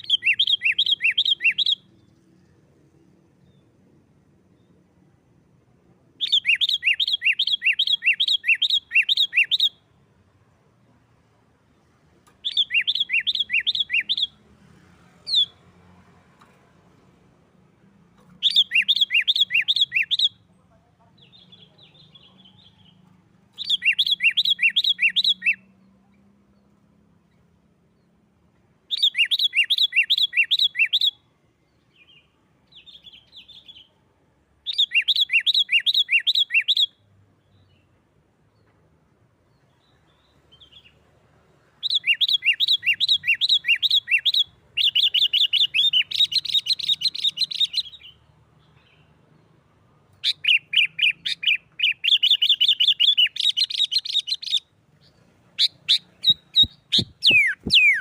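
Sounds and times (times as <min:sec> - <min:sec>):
soft bird twittering: 0:12.3 - 0:14.5, 0:18.3 - 0:20.5, 0:21.2 - 0:28.1, 0:41.8 - 0:49.2, 0:50.1 - 0:58.0
bulbul rapid sharp chirps: 0:55.6 - 0:58.0.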